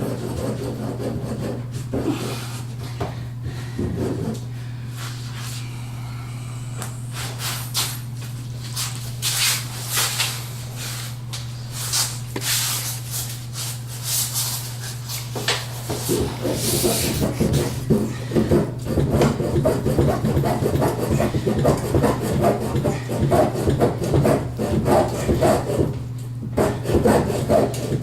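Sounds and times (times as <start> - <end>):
hand saw cutting plastic pipe: 0.0 - 2.4, 15.9 - 28.0
steady low hum: 0.0 - 28.0.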